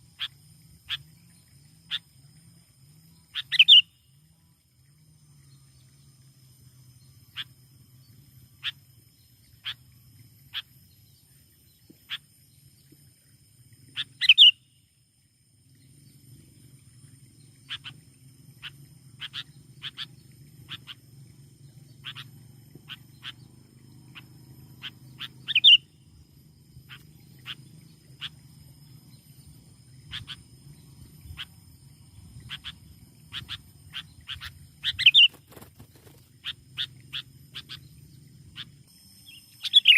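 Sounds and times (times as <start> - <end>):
bird chirping: 3.1 - 4.2, 6.9 - 12.9, 13.9 - 14.8, 17.0 - 21.0, 21.6 - 39.9.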